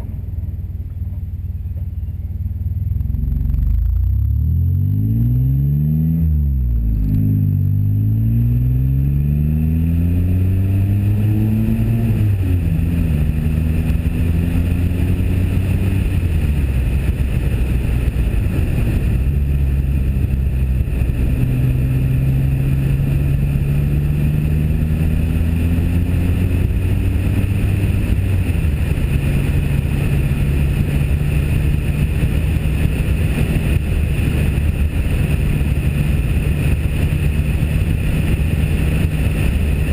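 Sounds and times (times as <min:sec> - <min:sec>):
car engine accelerating: 0:00.0 - 0:39.9
wind buffeting microphone: 0:09.7 - 0:39.9.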